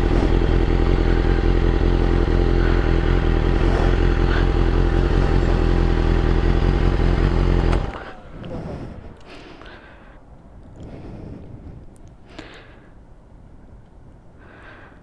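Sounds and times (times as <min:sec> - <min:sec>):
superbike engine running: 0:00.0 - 0:09.3.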